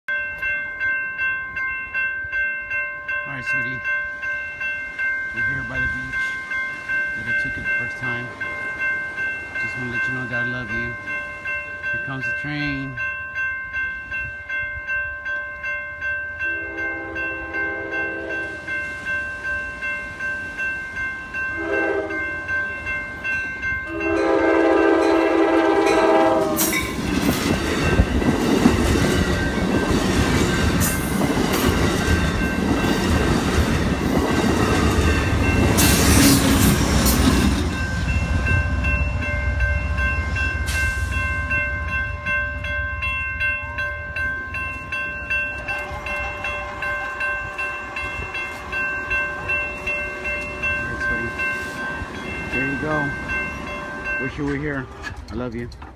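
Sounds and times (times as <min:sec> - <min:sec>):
level-crossing warning bell: 0:00.1 - 0:55.9
train rumbling and wheel clatter: 0:03.3 - 0:55.9
train horn: 0:16.5 - 0:18.6, 0:21.5 - 0:22.3, 0:23.9 - 0:26.9.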